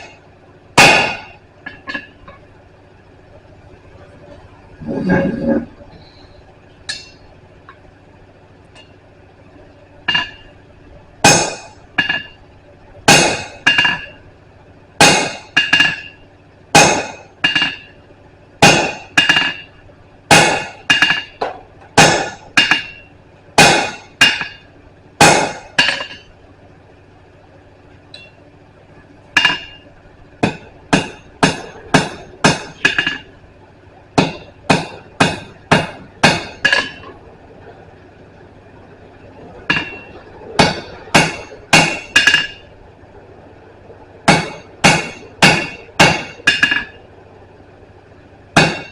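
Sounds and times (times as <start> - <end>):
hammer ringing on anvil: 16.8 - 17.9, 20.3 - 24.6, 25.2 - 26.3, 29.4 - 29.8, 30.4 - 33.3, 34.2 - 37.1, 39.7 - 42.6, 44.3 - 47.0, 48.6 - 48.9.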